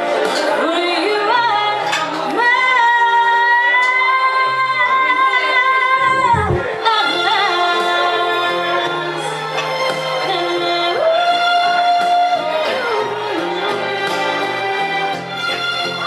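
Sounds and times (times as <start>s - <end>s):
latin music accompaniment: 5.9s - 7.0s
low thump: 6.0s - 6.7s.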